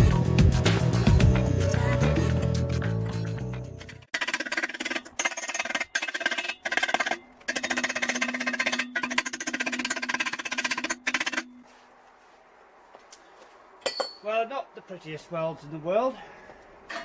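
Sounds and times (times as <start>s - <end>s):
music: 0.0s - 4.1s.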